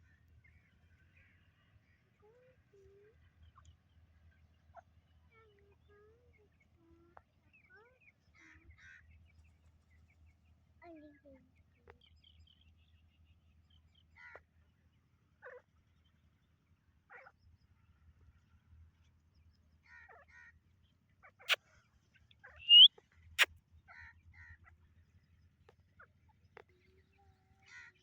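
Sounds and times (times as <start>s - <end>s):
partridges calling: 22.6s - 22.9s.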